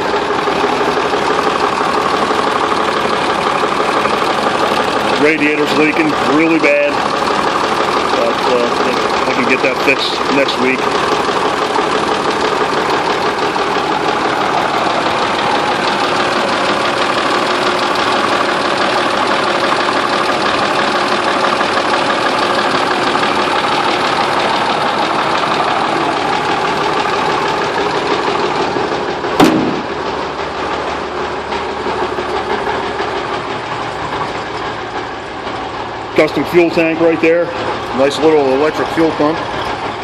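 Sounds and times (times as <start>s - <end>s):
truck engine idling: 0.0s - 40.0s
sharp engine knock: 29.3s - 30.1s.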